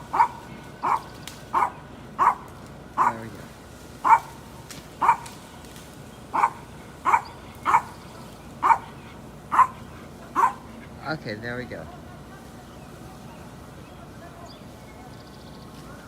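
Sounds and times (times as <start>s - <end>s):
dog barking: 0.1s - 3.3s, 4.0s - 4.4s, 5.0s - 5.4s, 6.3s - 8.0s, 8.6s - 10.8s.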